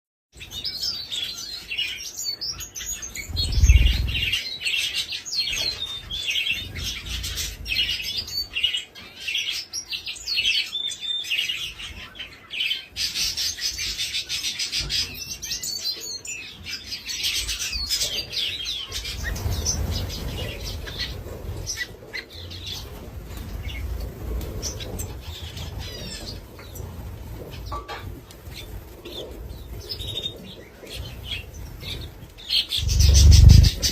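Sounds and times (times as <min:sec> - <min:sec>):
small birds chirping and singing: 0:00.3 - 0:33.9
low rumble: 0:03.3 - 0:04.3, 0:32.8 - 0:33.9.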